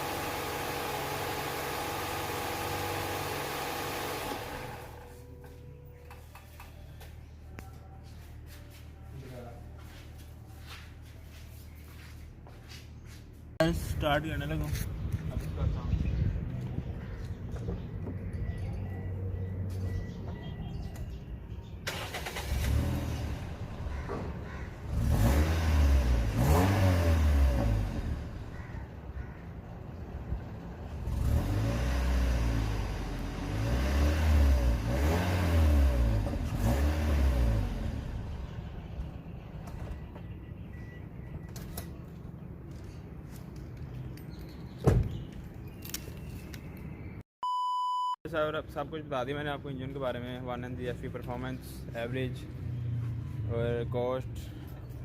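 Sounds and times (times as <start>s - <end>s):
car engine idling and revving: 0.0s - 7.2s, 21.9s - 44.4s, 51.0s - 55.0s.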